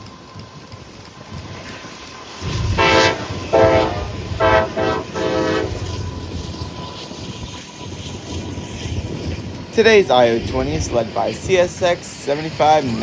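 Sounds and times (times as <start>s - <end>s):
train rumbling: 0.0s - 13.0s
locomotive horn blasts: 2.7s - 6.2s.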